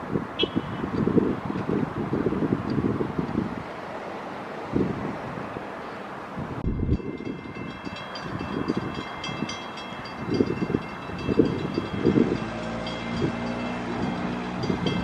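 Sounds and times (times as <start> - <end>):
rumble of train cars: 6.6 - 15.0.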